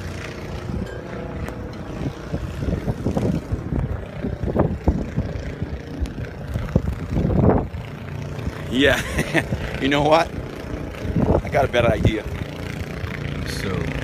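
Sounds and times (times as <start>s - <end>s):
blizzard wind buffeting microphone: 0.0s - 13.4s.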